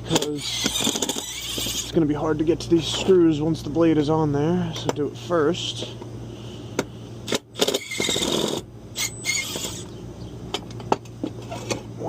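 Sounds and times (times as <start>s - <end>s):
rattling scraping noise: 0.0s - 2.0s, 7.6s - 9.8s
steady low hum: 0.0s - 12.0s.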